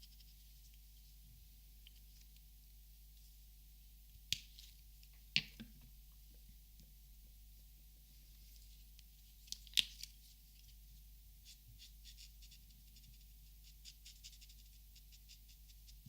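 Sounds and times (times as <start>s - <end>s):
marker scratching on paper: 11.4s - 16.0s.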